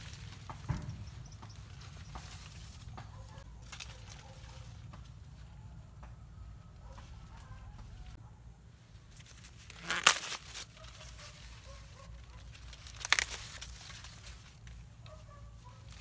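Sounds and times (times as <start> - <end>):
tearing crackling rustles: 0.0 - 0.8, 1.5 - 4.9, 9.0 - 16.0.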